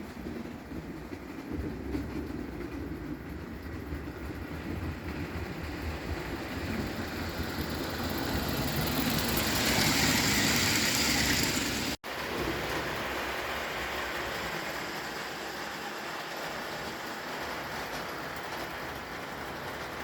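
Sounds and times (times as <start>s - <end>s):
toy steam locomotive rattling: 0.0s - 20.0s.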